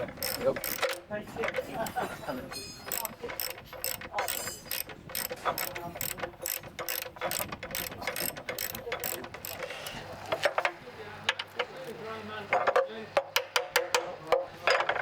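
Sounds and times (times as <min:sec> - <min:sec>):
ratchet wrench clicking: 0:00.0 - 0:01.1, 0:02.9 - 0:10.0.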